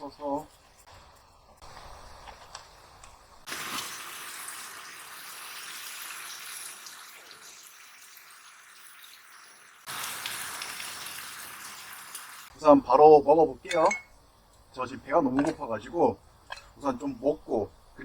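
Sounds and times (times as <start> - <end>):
stir-fry sizzling in a pan: 0.0 - 12.6.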